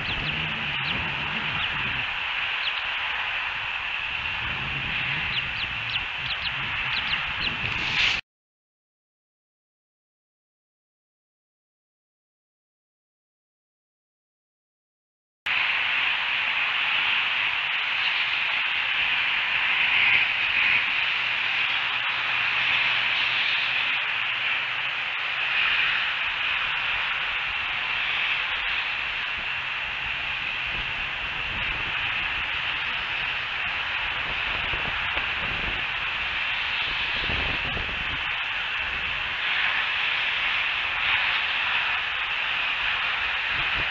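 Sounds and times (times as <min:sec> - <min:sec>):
low rumble: 0:00.0 - 0:02.8
outdoor ambient hiss: 0:00.0 - 0:08.2, 0:15.5 - 0:43.9.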